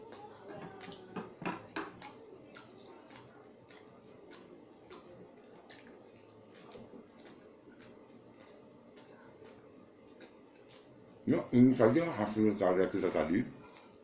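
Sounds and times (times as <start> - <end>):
wet chewing mouth clicks: 2.0 - 11.0.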